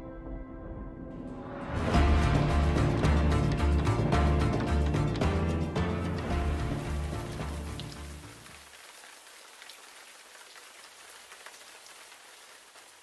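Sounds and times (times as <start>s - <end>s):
closing music: 0.0s - 8.5s
steady rain: 2.0s - 13.0s.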